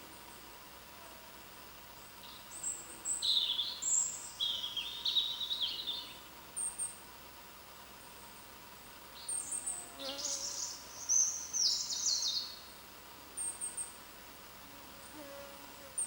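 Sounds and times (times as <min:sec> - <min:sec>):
faint background hiss: 0:00.0 - 0:16.0
small songbird chirping: 0:02.0 - 0:07.0, 0:09.1 - 0:14.0.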